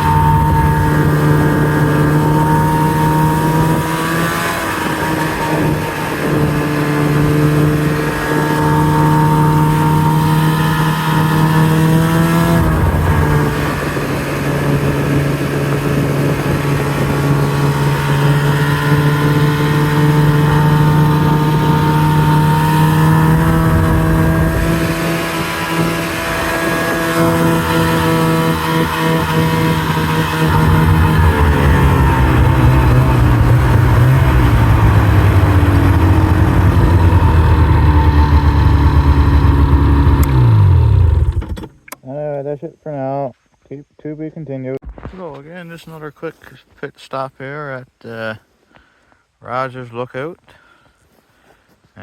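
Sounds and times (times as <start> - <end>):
snowmobile engine running: 0.0 - 41.6.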